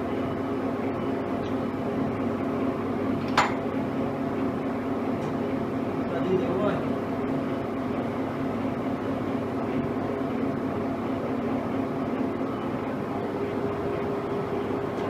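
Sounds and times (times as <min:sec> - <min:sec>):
lathe running with mechanical hum: 0:00.0 - 0:15.0.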